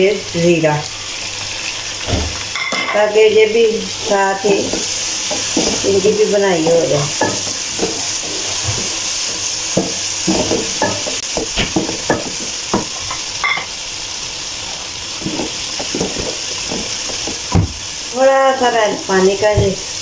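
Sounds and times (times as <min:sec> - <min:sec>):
masala sizzling in oil: 0:00.0 - 0:20.0
wooden spatula scraping a pot: 0:04.1 - 0:13.2, 0:15.1 - 0:17.6.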